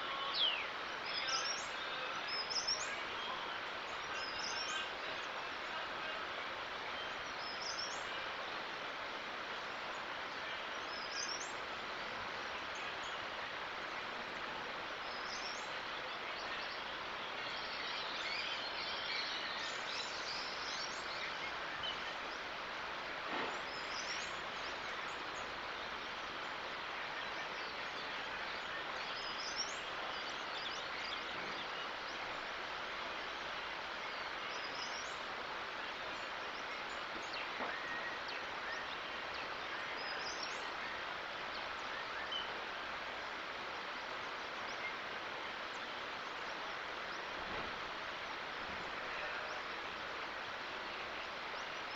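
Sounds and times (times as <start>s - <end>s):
bird chirping: 0.0s - 5.4s, 9.9s - 11.8s, 23.3s - 32.5s
outdoor background hiss: 0.0s - 51.9s.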